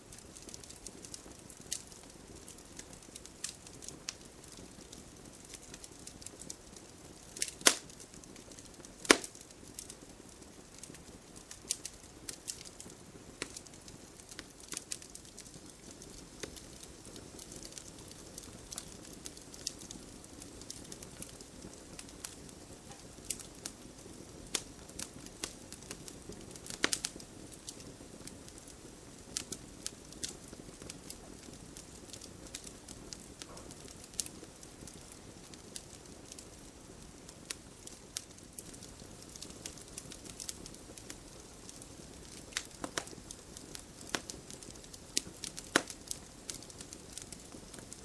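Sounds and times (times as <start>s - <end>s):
campfire crackling and popping: 0.0s - 48.0s.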